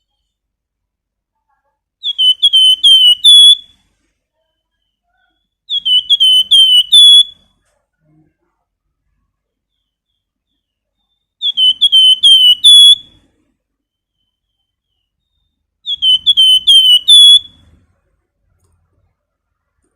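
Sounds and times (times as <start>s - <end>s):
bird whistling song: 2.0s - 3.8s, 4.6s - 7.5s, 9.7s - 13.2s, 13.8s - 17.8s.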